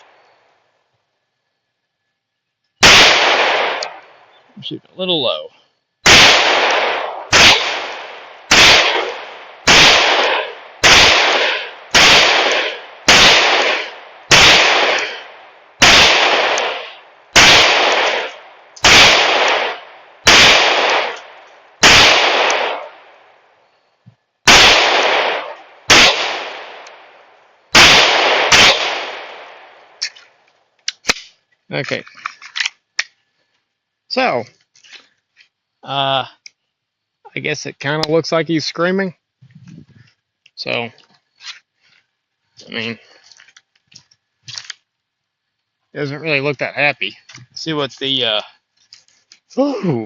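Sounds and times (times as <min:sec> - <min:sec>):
pistol shots: 0:02.8 - 0:04.1, 0:06.0 - 0:23.3, 0:24.4 - 0:30.1.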